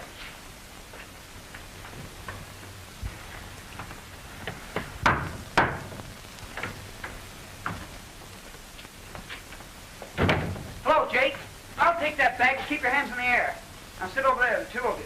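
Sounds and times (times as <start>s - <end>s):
film soundtrack hiss: 0.0s - 15.0s
loud thuds: 10.0s - 10.8s.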